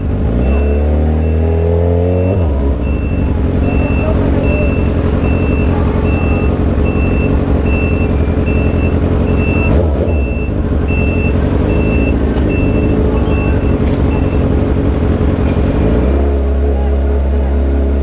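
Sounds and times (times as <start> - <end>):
vehicle engine rumbling: 0.0 - 18.0
high electronic beep: 0.3 - 14.6.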